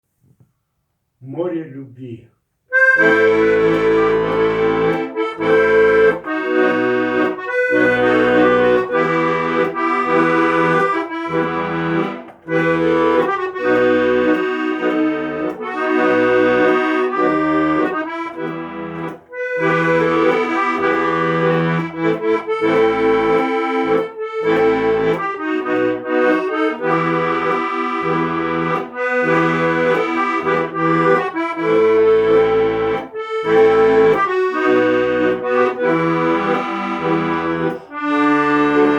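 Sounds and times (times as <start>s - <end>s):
accordion music: 2.7s - 38.9s.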